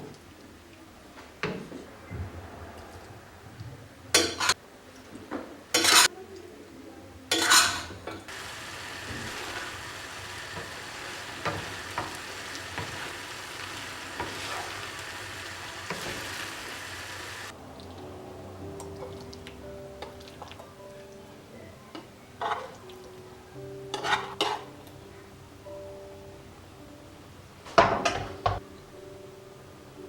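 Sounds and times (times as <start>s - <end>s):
food sizzling in a pan: 8.3s - 17.6s.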